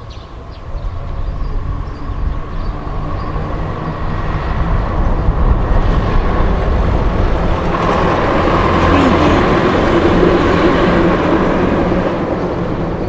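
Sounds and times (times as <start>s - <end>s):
town street ambience: 0.0s - 13.0s.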